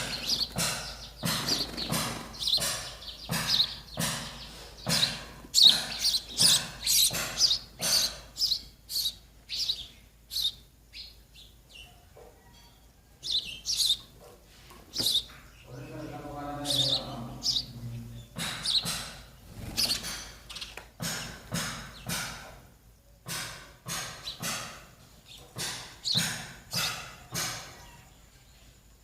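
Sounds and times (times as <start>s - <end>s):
baby sparrows chirping: 0.0s - 28.8s.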